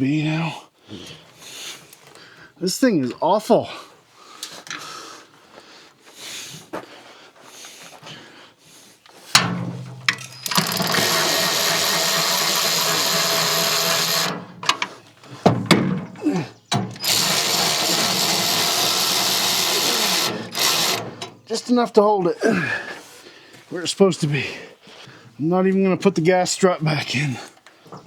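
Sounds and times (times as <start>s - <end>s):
clicks: 9.4s - 15.0s
power drill running bolts in: 10.1s - 15.0s, 16.8s - 21.4s.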